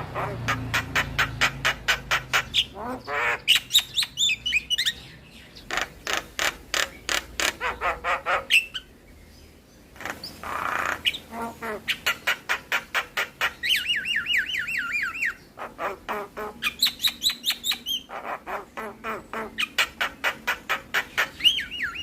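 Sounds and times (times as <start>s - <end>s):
myna bird clicking and squawking: 0.0s - 8.9s, 10.0s - 22.0s
bird warbling trill: 18.9s - 22.0s.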